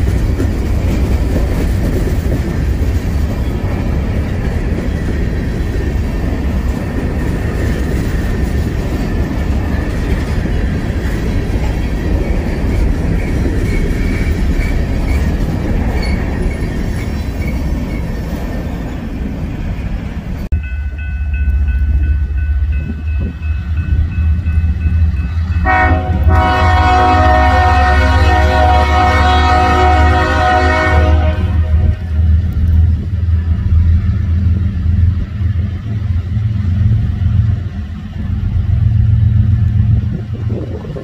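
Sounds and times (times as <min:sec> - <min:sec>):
freight train rumbling past: 0:00.0 - 0:41.0
faint wheel squeal: 0:13.2 - 0:18.2
deep steady rumble: 0:31.4 - 0:41.0.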